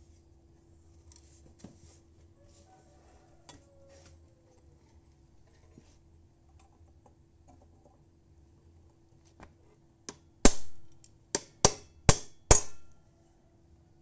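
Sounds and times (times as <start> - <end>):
hammer striking metal: 10.5 - 12.9.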